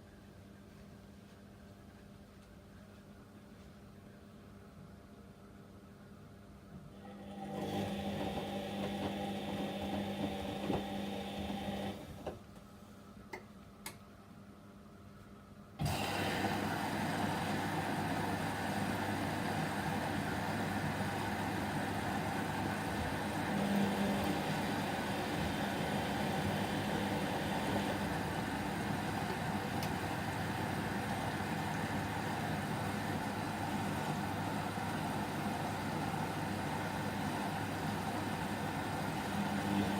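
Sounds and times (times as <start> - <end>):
washing machine running: 6.9 - 12.5, 15.8 - 39.9.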